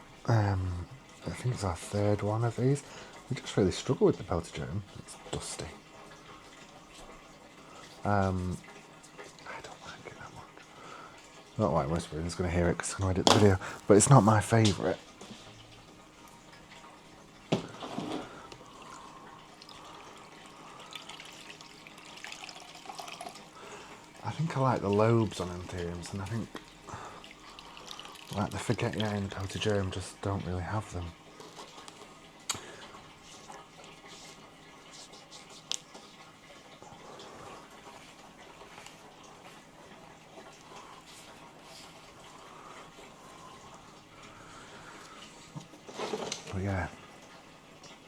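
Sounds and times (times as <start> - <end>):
water pouring: 0.1 - 48.0
light rustling of plant: 13.1 - 15.5.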